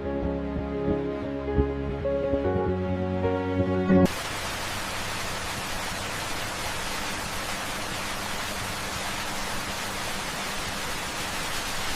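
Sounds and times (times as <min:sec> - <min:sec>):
steady hiss: 0:04.1 - 0:11.9.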